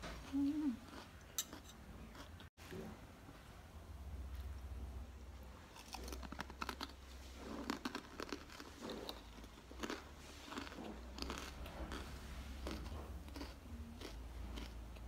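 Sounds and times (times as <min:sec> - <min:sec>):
crunchy cracker chewing: 0:05.7 - 0:15.0.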